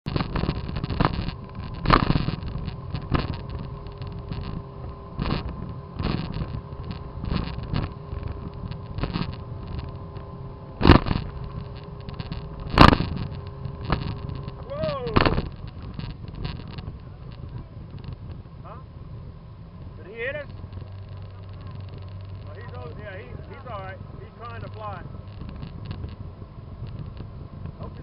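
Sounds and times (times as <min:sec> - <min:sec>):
hull thumping on waves: 0:00.0 - 0:19.2
hull rumble: 0:00.0 - 0:28.0
motor skiff whining: 0:00.0 - 0:28.0.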